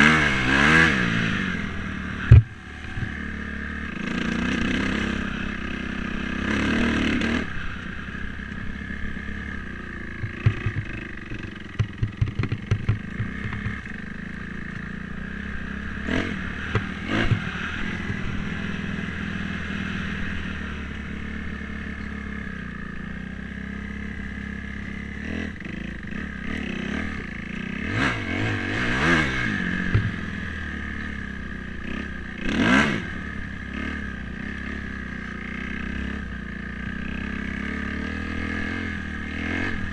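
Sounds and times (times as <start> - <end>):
dirt bike engine revving: 0.0 - 39.9
rapid clattering knocks: 10.2 - 13.9.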